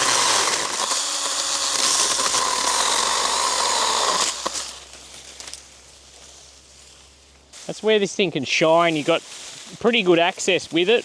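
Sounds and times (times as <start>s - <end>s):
electric chainsaw cutting branch: 0.0s - 5.0s.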